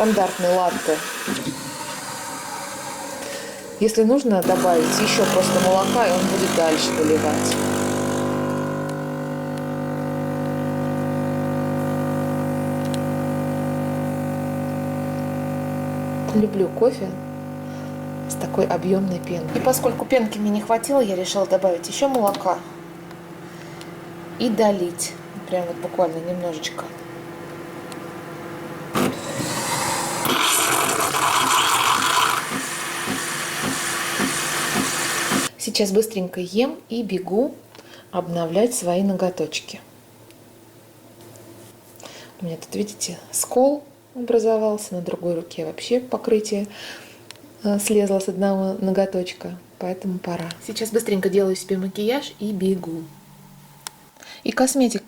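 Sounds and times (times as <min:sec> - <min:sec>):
milk frothing hiss: 0:00.0 - 0:09.4, 0:29.2 - 0:35.5
coffee machine pump humming: 0:00.0 - 0:35.5.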